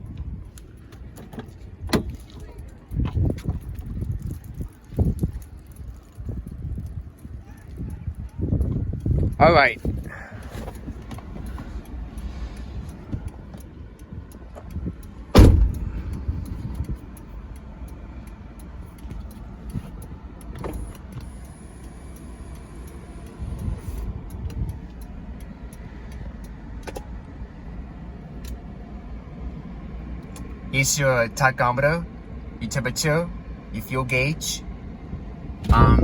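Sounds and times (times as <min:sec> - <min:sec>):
low rumble: 0:08.2 - 0:18.9
car body panel slammed shut: 0:15.4 - 0:15.8.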